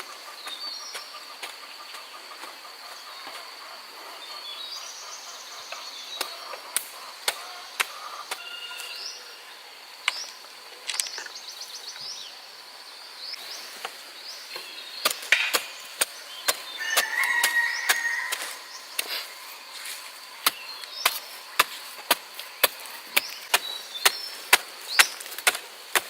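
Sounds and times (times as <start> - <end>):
high insect whine: 0.0 - 26.0
bird chirps: 13.0 - 19.6, 20.2 - 25.2.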